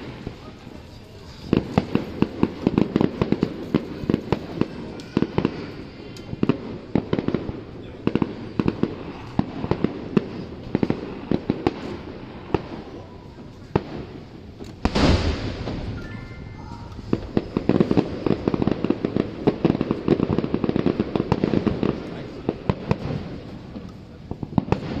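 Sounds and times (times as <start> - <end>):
fireworks exploding: 0.0 - 25.0.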